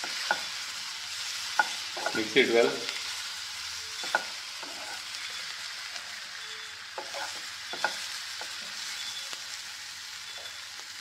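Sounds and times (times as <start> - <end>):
food sizzling in oil: 0.0 - 11.0
wooden spatula scraping a pan: 4.0 - 5.2, 7.0 - 8.8.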